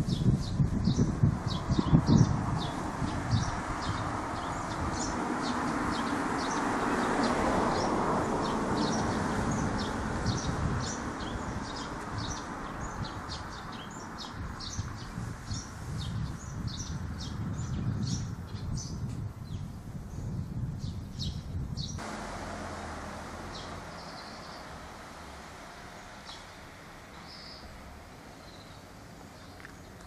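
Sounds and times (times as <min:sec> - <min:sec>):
birds chirping: 0:00.0 - 0:30.0
rushing background noise: 0:22.0 - 0:30.0.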